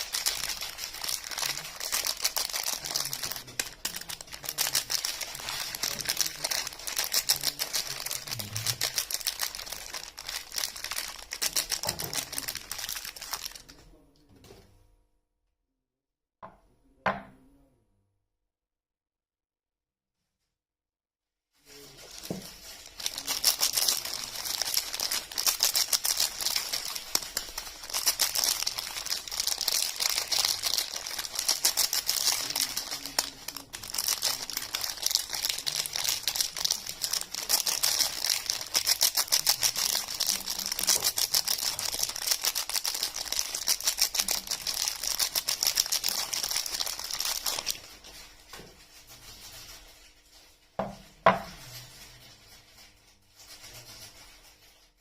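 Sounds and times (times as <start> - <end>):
soap wrapping crinkling: 0.0 - 13.8, 21.8 - 48.9.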